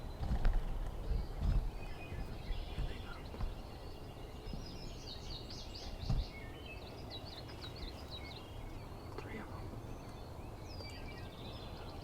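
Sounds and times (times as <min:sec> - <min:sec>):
low thumps: 0:00.0 - 0:03.7, 0:06.0 - 0:06.4
wind: 0:00.0 - 0:12.0.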